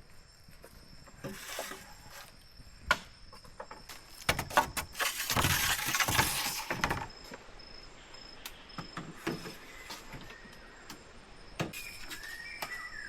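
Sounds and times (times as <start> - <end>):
rustling and scraping in undergrowth: 0.0 - 2.6, 3.6 - 7.4, 9.1 - 10.5, 11.7 - 13.0
high insect whine: 0.0 - 13.0.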